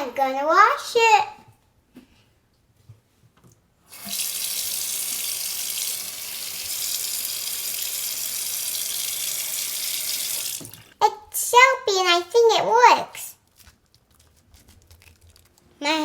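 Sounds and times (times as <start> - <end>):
hands washing under water: 3.9 - 11.0
sink tap turned on: 3.9 - 11.0
water running into a basin: 3.9 - 11.0.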